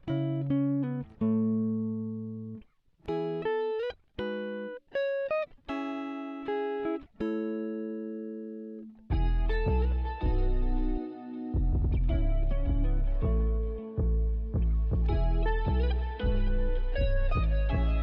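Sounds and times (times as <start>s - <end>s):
plucked guitar music: 0.0s - 18.0s
bass: 9.1s - 18.0s.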